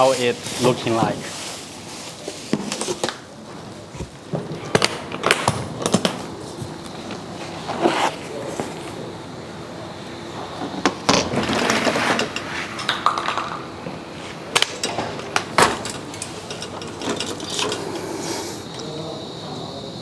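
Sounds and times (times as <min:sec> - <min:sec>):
hard parts knocking and clinking: 0:14.5 - 0:19.0.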